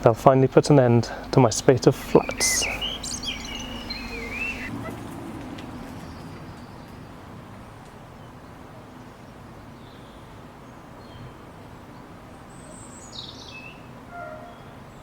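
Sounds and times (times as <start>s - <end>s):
low outdoor background noise: 0.0s - 15.0s
faint bird chirps: 2.2s - 4.7s.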